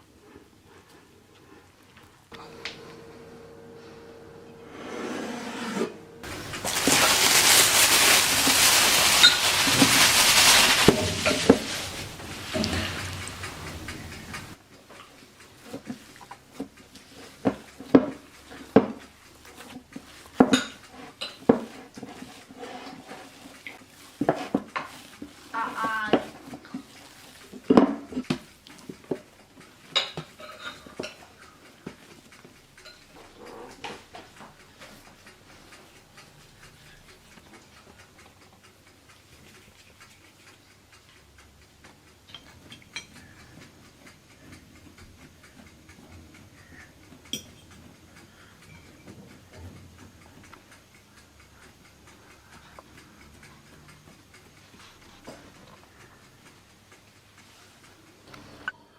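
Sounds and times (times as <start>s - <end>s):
dishes and cutlery clinking: 6.2s - 14.6s, 30.0s - 31.2s.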